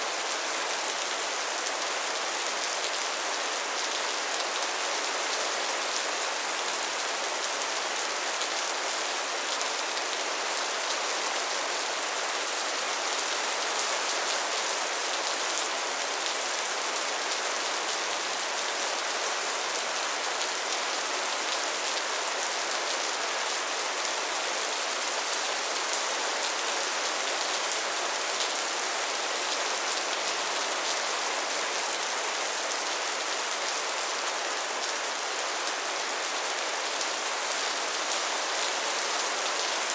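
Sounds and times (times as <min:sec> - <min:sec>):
soft rain falling: 0:00.0 - 0:39.9.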